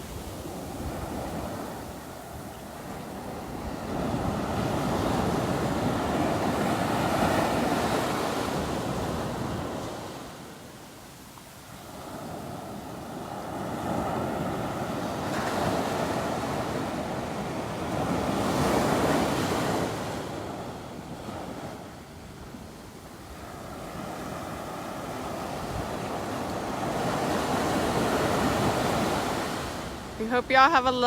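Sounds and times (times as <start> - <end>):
wind buffeting microphone: 0.0 - 10.1
ocean surf breaking: 0.0 - 10.9, 11.8 - 31.0.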